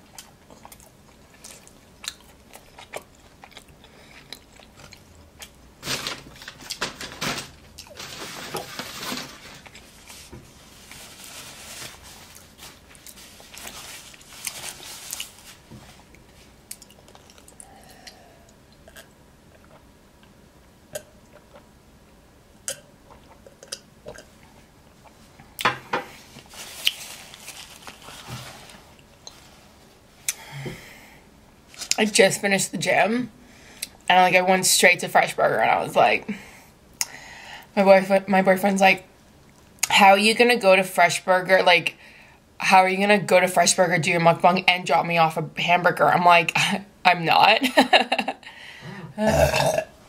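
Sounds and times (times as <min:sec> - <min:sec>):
person chewing food: 0:00.0 - 0:05.6, 0:16.0 - 0:21.7, 0:22.6 - 0:25.7
wet mouth clicks and crunches: 0:16.7 - 0:18.2.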